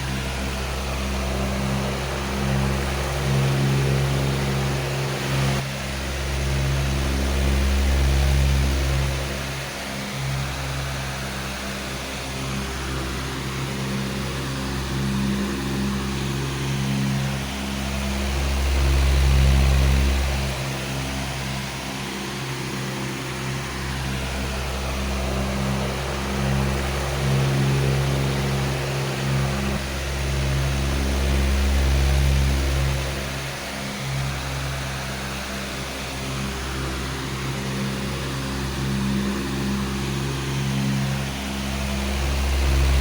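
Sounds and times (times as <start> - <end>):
electric fan running: 0.0 - 43.0.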